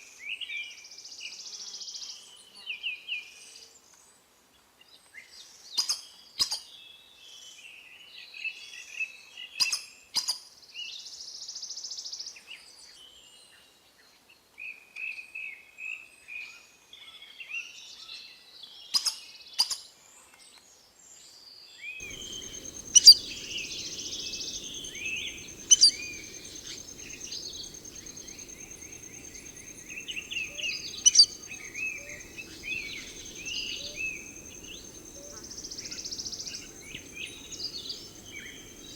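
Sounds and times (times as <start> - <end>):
birds chirping and whistling: 22.0 - 38.9.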